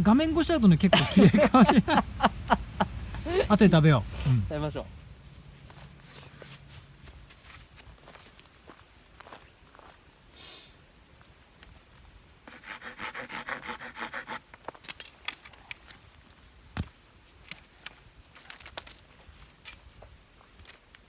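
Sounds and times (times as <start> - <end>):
hand saw rasping through wood: 12.5 - 14.4.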